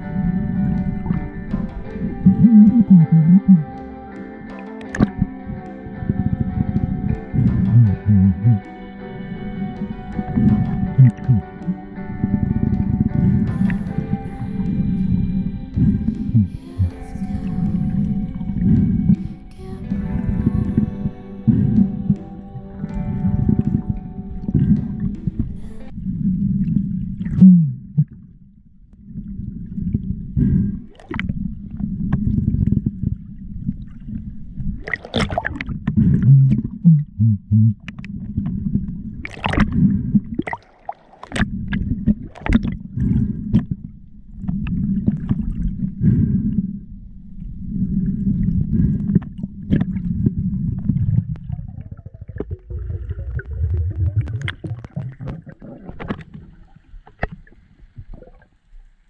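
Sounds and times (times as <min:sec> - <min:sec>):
underwater rumbling surges: 0:00.0 - 0:03.8, 0:04.4 - 0:59.0
sharp clicks and knocks: 0:09.8 - 0:11.8.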